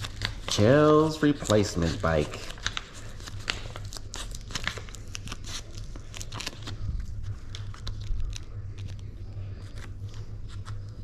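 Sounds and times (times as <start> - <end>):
steady low hum: 0.0 - 11.0
sticker sheets crinkling: 0.0 - 11.0.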